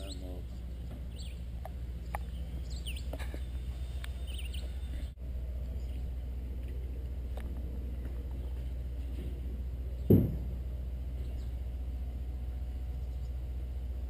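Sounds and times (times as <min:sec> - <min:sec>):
small birds chirping: 0:00.0 - 0:07.0, 0:11.1 - 0:11.7, 0:12.8 - 0:13.5
steady low rumble: 0:00.0 - 0:14.0.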